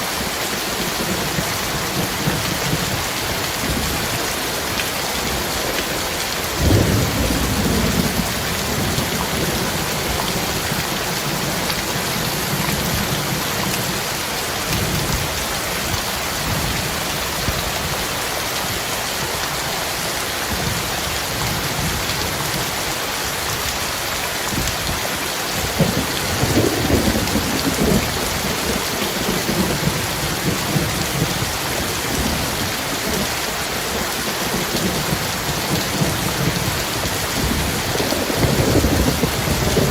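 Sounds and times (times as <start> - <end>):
heavy rain falling: 0.0 - 39.9
thunder rumbling: 6.4 - 14.1, 25.6 - 39.9.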